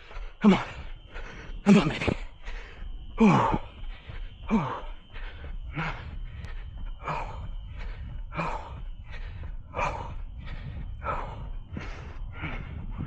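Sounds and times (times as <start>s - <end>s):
heavy breathing: 0.0s - 13.0s.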